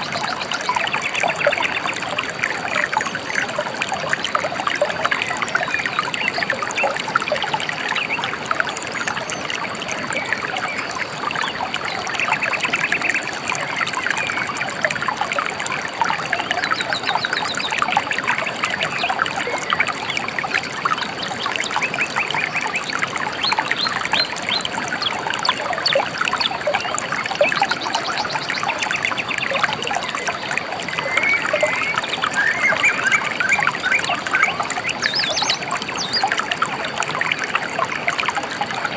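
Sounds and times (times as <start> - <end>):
stream trickling and burbling: 0.0 - 38.9
songbirds chirping: 23.3 - 37.3.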